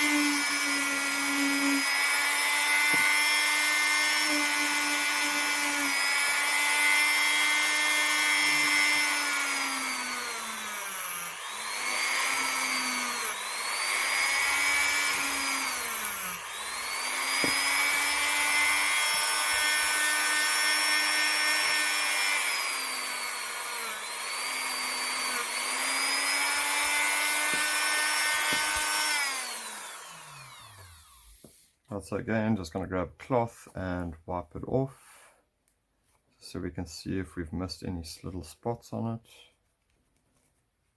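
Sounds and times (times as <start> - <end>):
rotary tool whining: 0.0 - 31.5.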